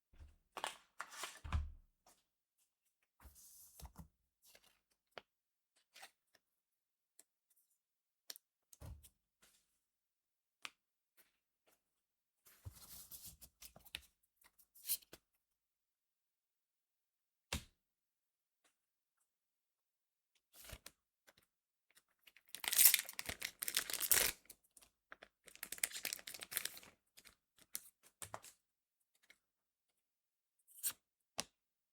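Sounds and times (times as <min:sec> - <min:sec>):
trading cards rustling: 0:22.6 - 0:24.4, 0:25.5 - 0:26.9.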